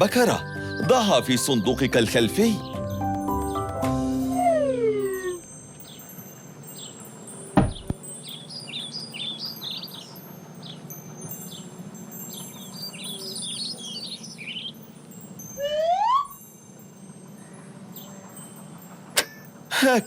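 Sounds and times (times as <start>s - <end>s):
birds chirping: 0.0s - 20.0s
loud knock: 7.6s - 8.0s.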